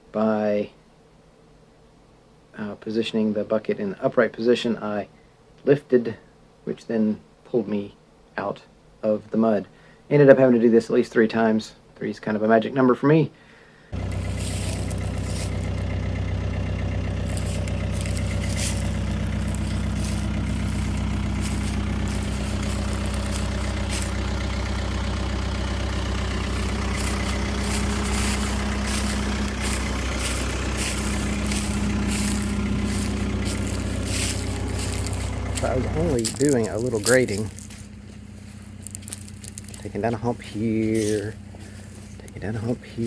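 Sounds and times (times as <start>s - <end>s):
skid steer engine running: 14.0s - 43.0s.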